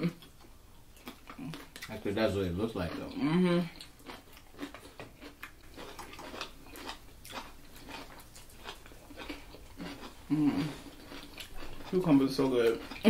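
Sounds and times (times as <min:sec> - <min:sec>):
people chewing food: 0:00.0 - 0:13.0
person humming: 0:10.3 - 0:10.8.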